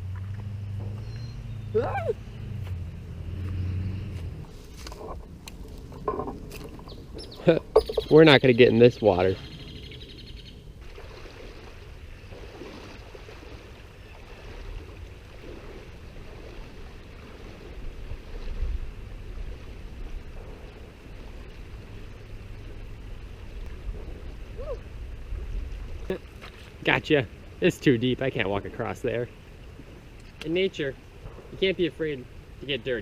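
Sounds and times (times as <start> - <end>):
river water flowing: 0.0 - 33.0
low rumbles on microphone: 12.1 - 26.2.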